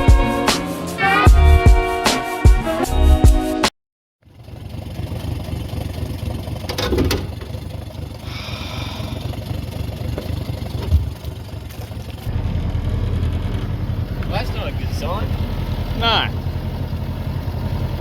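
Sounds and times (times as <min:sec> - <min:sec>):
outboard motor running: 0:04.2 - 0:18.0
water noise: 0:04.6 - 0:12.3.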